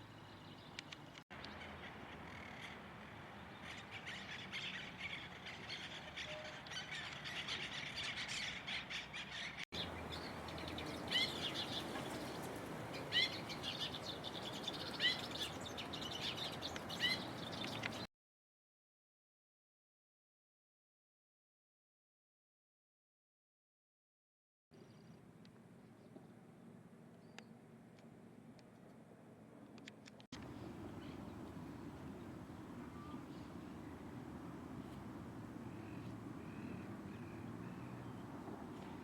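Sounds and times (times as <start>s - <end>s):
birds chirping: 3.5s - 18.1s.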